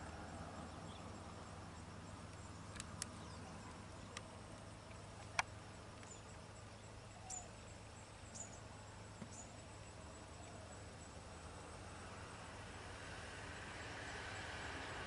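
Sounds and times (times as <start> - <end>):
low steady hum: 0.0 - 15.0
sharp clicks: 2.3 - 3.2, 4.1 - 6.2.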